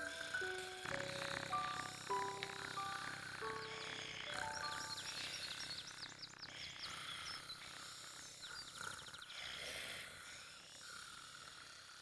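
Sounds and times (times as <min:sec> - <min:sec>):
rapid bird trill: 0:00.0 - 0:09.4.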